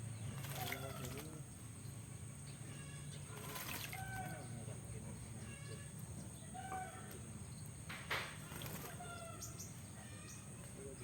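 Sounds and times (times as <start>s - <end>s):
bird bathing rustle: 0.0s - 2.2s, 3.2s - 4.5s, 7.1s - 9.9s
birds calling: 0.0s - 11.0s.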